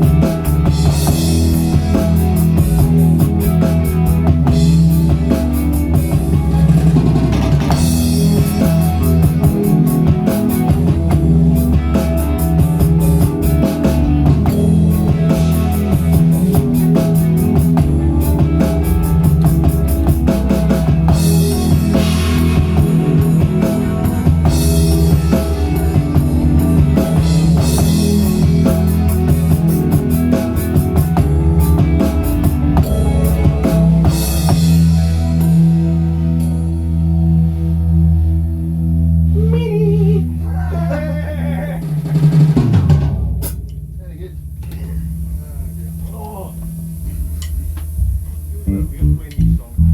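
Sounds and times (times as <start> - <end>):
rock band playing: 0.0 - 49.9
cymbal crashes: 42.6 - 49.4.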